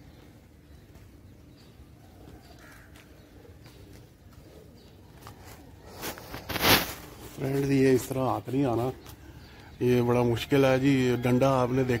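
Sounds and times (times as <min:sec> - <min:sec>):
faint bird calls: 0:00.0 - 0:07.1
low background noise: 0:00.0 - 0:12.0.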